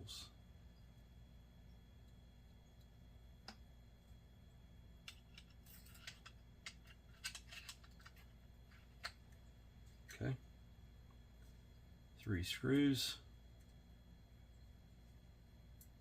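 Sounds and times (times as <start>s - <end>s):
small clicks and scratchy taps: 2.0s - 4.2s, 5.0s - 10.2s.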